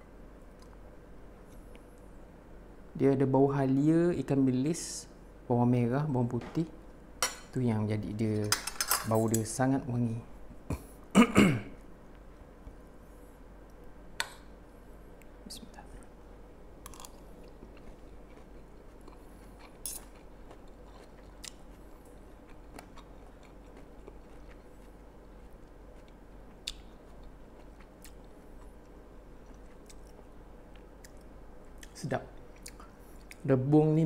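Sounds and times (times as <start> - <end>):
person chewing: 16.8 - 33.5.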